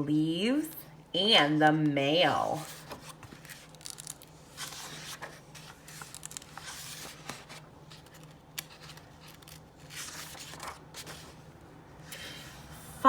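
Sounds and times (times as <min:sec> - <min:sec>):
book pages rustling: 0:02.6 - 0:11.5.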